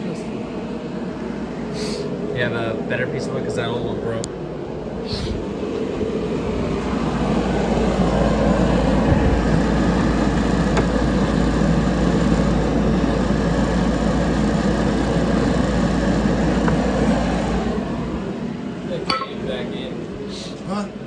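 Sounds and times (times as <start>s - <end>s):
shop machine motor droning: 5.8s - 20.2s.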